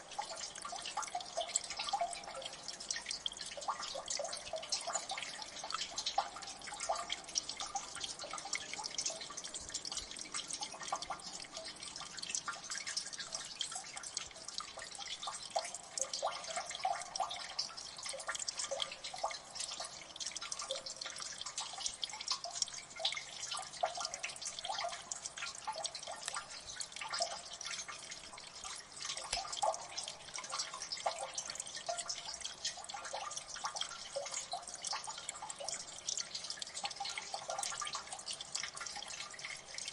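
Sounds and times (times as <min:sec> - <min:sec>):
water drips plinking: 0:00.0 - 0:39.9
running water: 0:17.8 - 0:39.9.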